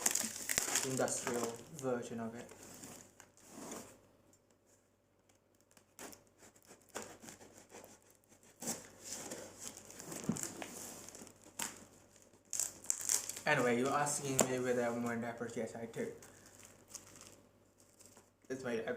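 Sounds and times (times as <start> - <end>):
packaging crinkling and rustling: 0.0 - 3.4, 8.6 - 15.2, 16.1 - 18.4.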